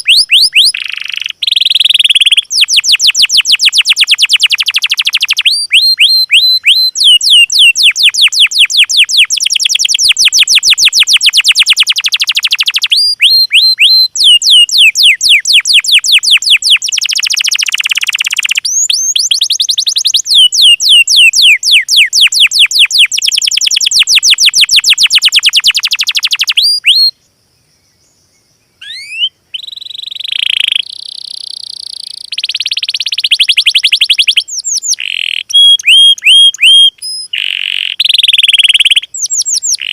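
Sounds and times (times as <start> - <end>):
buzzy bird song rising notes: 0.0 - 27.1, 27.8 - 39.9
songbird fast trills: 0.0 - 39.9.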